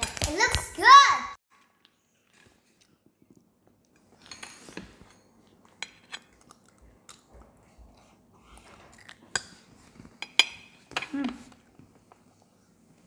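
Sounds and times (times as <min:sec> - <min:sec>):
children chewing crunchy food: 0:04.9 - 0:10.2.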